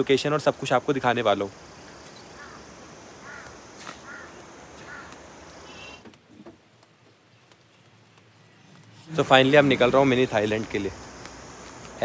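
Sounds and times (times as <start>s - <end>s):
steady outdoor hiss: 0.0s - 12.0s
bird calling: 1.5s - 10.1s.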